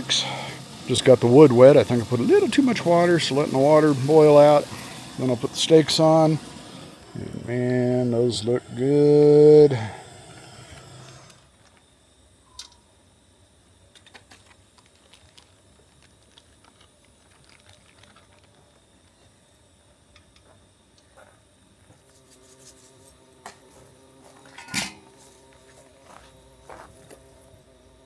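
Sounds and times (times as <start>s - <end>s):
wet wood crackling and popping: 14.2s - 18.7s.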